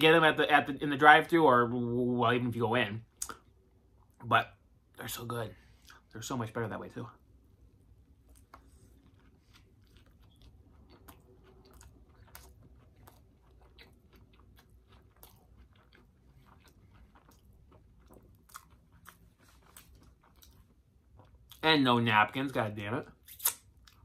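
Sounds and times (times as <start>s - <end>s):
faint chewing of burger: 8.1s - 21.6s
soft mouth clicks: 23.3s - 23.6s.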